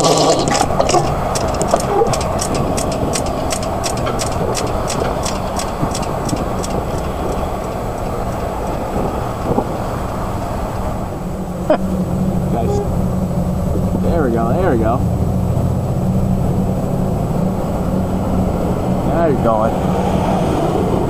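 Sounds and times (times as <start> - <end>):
wheels ticking over rail: 0.0 - 10.9
freight train rumbling: 0.0 - 21.0.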